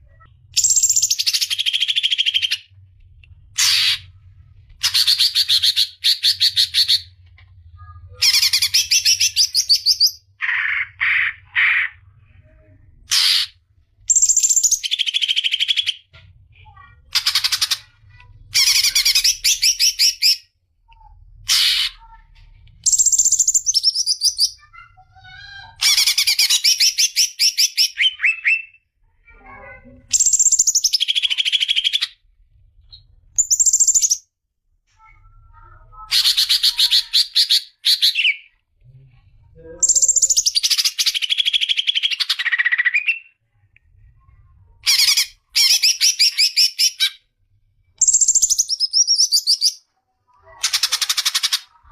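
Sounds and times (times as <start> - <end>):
songbird singing trilled phrases: 14.1 - 15.9, 33.4 - 34.2, 39.8 - 43.3, 48.0 - 49.8.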